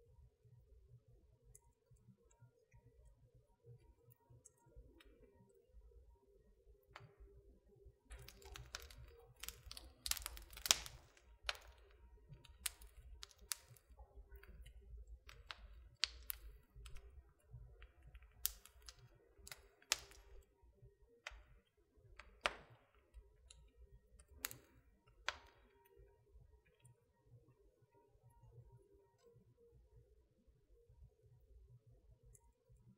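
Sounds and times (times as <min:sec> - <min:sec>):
wood fire crackling: 0:08.0 - 0:20.6, 0:21.2 - 0:26.1.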